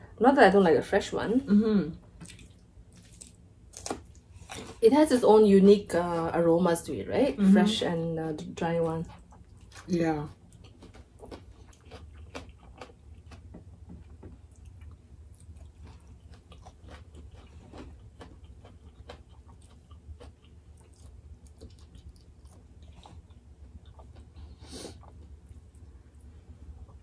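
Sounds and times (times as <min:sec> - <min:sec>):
chewing with wet mouth clicks: 0:02.2 - 0:04.7, 0:09.1 - 0:25.9.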